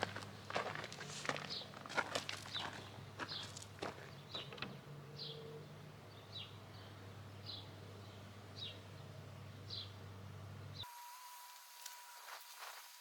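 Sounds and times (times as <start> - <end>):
bird chirping: 1.2 - 10.0.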